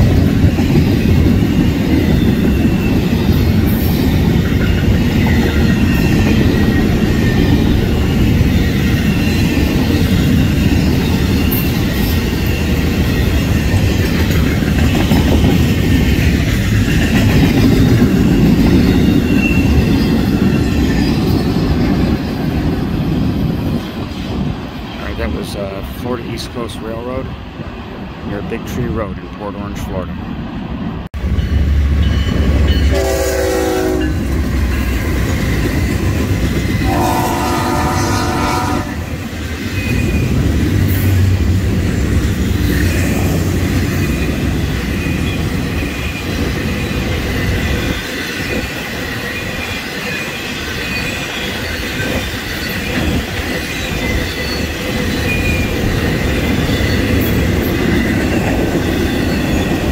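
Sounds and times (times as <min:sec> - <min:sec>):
train wheels rumbling and clattering: 0:00.0 - 0:59.9
locomotive horn blasts: 0:32.9 - 0:34.3, 0:36.8 - 0:39.1.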